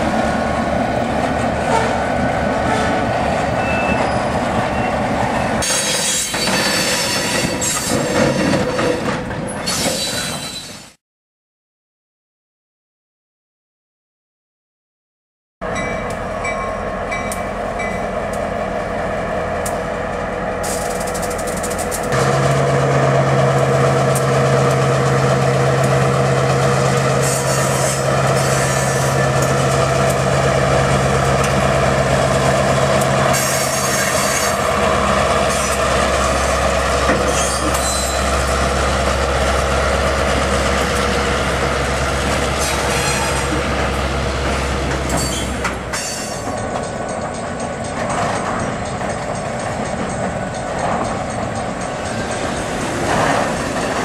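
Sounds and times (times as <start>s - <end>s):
diesel locomotive engine: 0.0s - 11.0s, 15.6s - 54.0s
freight cars rumbling past: 16.2s - 54.0s.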